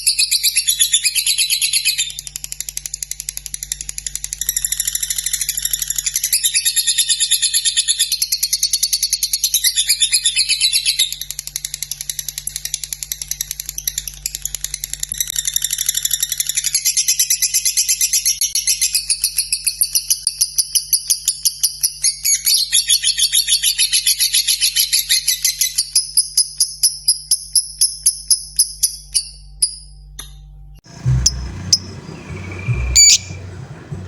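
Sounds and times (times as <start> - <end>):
bird chattering trill: 30.9 - 34.0.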